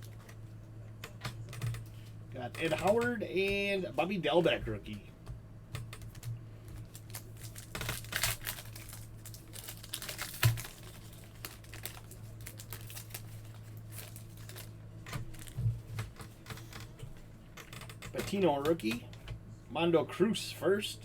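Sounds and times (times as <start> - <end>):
faint low hum: 0.0 - 21.0
foil wrappers crinkling: 6.0 - 17.0.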